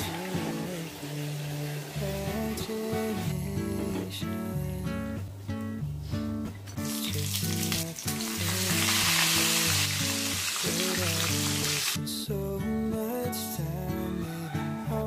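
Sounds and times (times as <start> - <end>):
battered food sizzling in oil: 0.0 - 3.3, 6.8 - 12.0.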